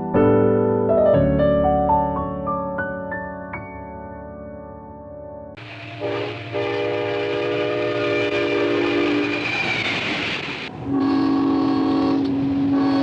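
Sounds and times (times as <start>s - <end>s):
locomotive air horn chord: 5.6s - 9.4s, 10.7s - 13.0s
low rumble of train: 5.6s - 13.0s.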